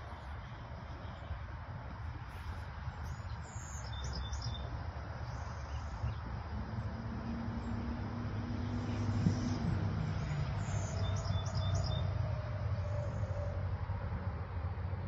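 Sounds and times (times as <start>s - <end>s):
low outdoor rumble: 0.0s - 15.0s
birds chirping: 3.0s - 6.3s, 8.7s - 12.2s.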